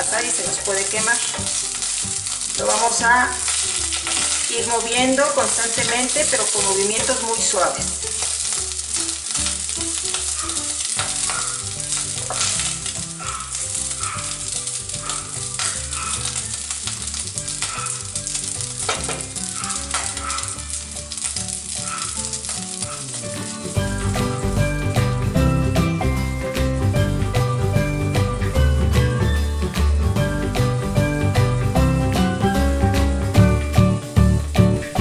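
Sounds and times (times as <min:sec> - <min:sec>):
rice sizzling in hot oil: 0:00.0 - 0:31.8
wooden spatula scraping a pot: 0:03.5 - 0:07.2.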